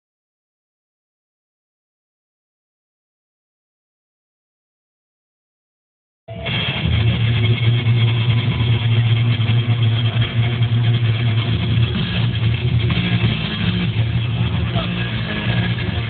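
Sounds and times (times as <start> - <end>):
car engine running: 6.5 - 16.0.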